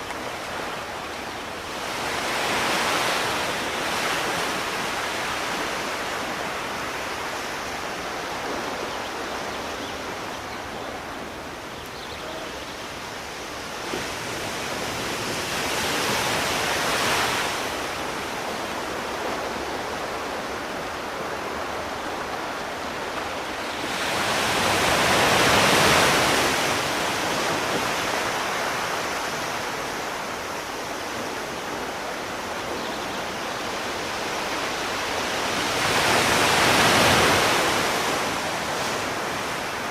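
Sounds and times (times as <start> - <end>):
rush of surf: 0.0 - 39.9
sea waves washing in: 12.6 - 39.9.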